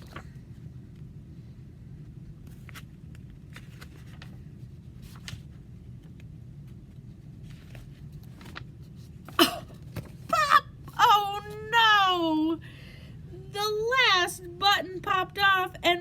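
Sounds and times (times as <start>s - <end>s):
steady low hum: 0.0s - 16.0s
book pages rustling: 2.0s - 10.3s.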